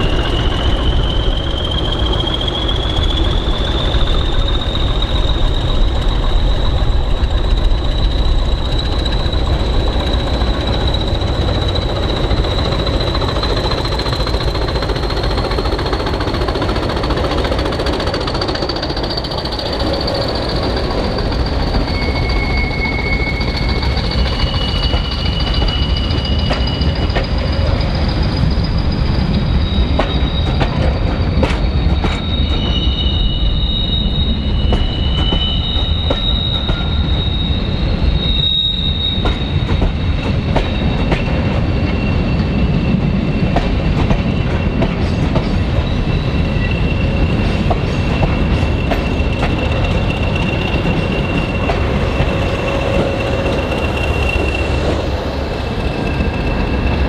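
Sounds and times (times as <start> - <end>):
train rumbling on track: 0.0 - 57.0
wheels squealing: 0.0 - 57.0.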